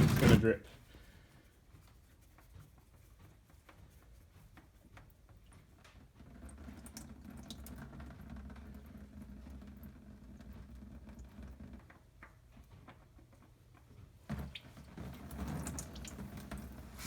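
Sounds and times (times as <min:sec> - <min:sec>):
oil dripping into pan: 0:05.4 - 0:13.0, 0:14.3 - 0:16.8.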